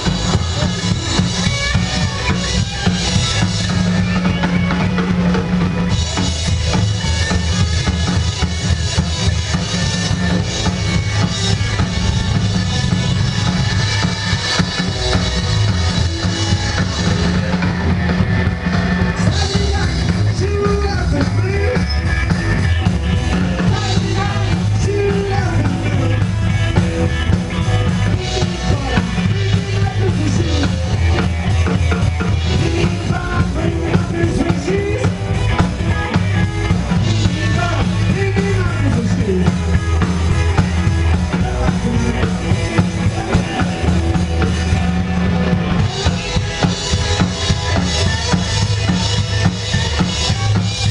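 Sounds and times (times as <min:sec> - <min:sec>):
live rockabilly band playing: 0:00.0 - 0:50.9
person singing: 0:19.1 - 0:22.0, 0:23.3 - 0:26.5, 0:27.1 - 0:44.6.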